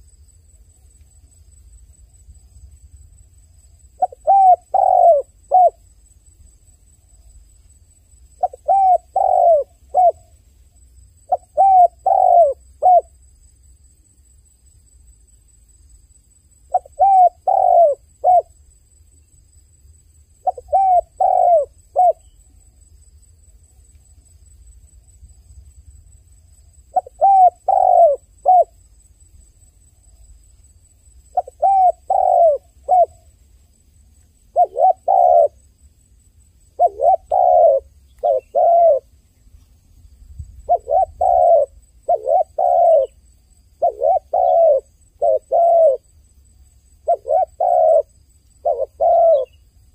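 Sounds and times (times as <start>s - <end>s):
dove cooing: 4.0s - 5.8s, 8.4s - 10.3s, 11.3s - 13.1s, 16.7s - 18.5s, 20.4s - 22.3s, 26.9s - 28.8s, 31.3s - 33.3s, 34.5s - 35.6s, 36.7s - 39.1s, 40.6s - 43.2s, 43.8s - 46.1s, 47.0s - 49.6s.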